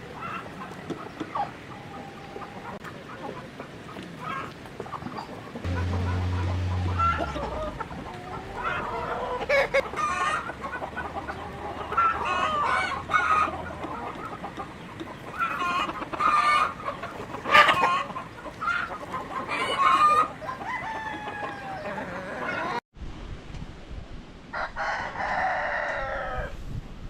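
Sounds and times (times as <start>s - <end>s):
chickens clucking: 0.0s - 22.8s
rooster crowing: 5.6s - 10.4s, 19.6s - 22.8s, 24.6s - 26.5s.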